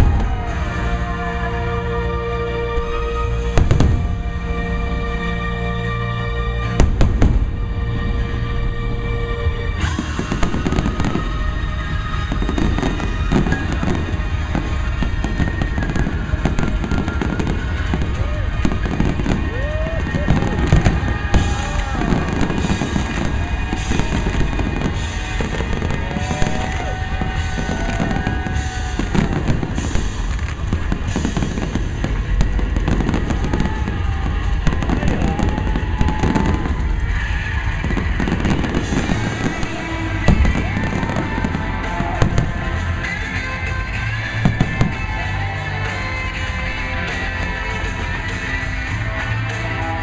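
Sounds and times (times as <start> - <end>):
fireworks bursting: 0.0 - 50.0
music playing: 0.0 - 50.0.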